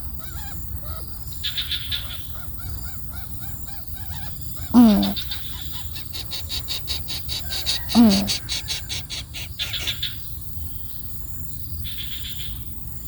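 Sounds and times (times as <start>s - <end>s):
birds chirping rapidly: 0.0s - 10.3s.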